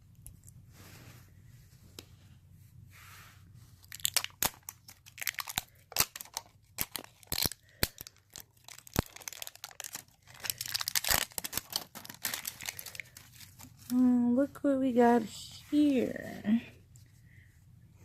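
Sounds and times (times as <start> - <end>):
plastic wrapping crackling: 3.8 - 14.0.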